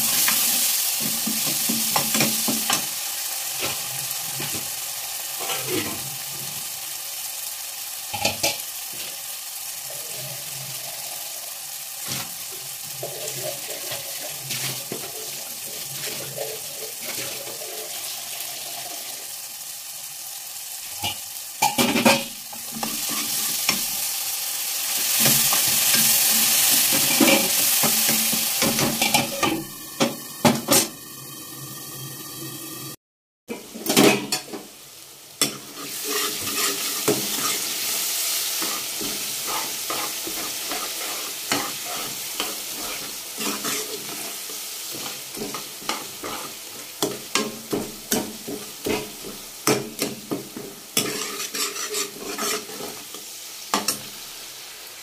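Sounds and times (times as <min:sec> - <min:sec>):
tomatoes sizzling in oil: 0:00.0 - 0:55.0
metal ladle scraping pan: 0:25.1 - 0:31.2, 0:35.4 - 0:53.2.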